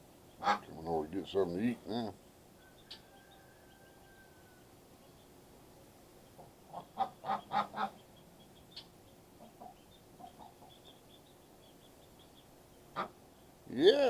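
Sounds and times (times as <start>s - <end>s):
ducklings peeping: 0.2s - 13.9s
duck quacking: 0.4s - 0.7s, 6.4s - 8.0s, 12.9s - 13.2s.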